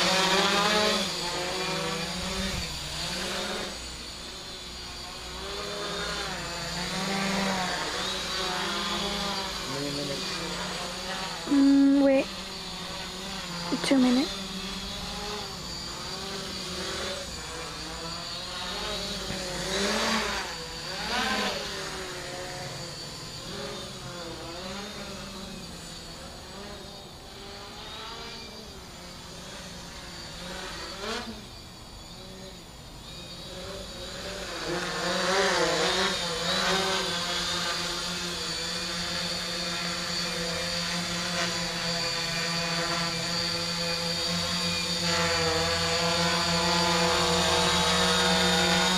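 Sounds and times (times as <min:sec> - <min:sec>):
drone motors buzzing: 0:00.0 - 0:48.9.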